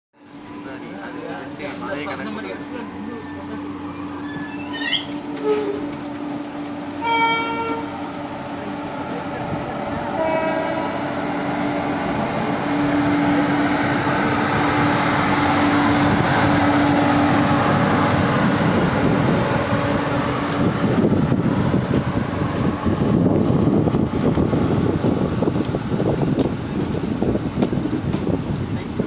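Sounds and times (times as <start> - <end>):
electric locomotive humming: 0.2 - 29.0
freight wagon wheels rumbling: 3.5 - 29.0.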